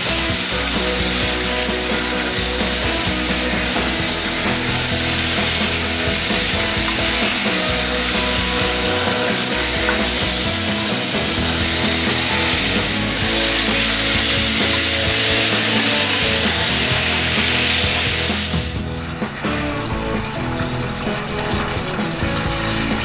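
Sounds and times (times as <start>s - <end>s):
meat sizzling in a frying pan: 0.0s - 18.8s
background music: 0.0s - 23.0s.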